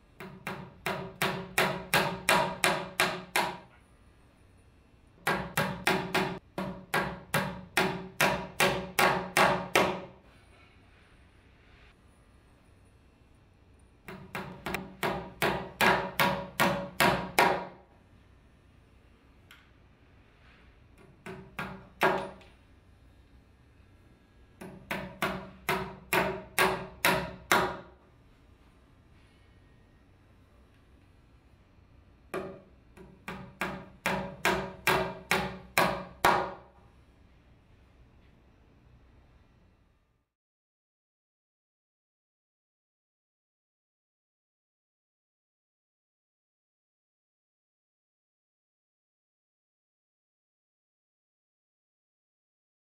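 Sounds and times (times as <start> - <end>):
hammer striking nails: 0.2 - 3.7, 5.2 - 10.1, 14.1 - 17.8, 21.0 - 22.4, 24.6 - 27.9, 32.3 - 36.7.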